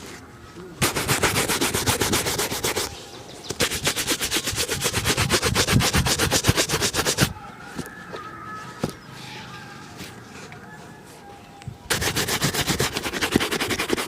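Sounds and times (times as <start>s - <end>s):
shoe being buffed: 0.8s - 2.9s, 3.5s - 7.3s, 11.9s - 14.0s.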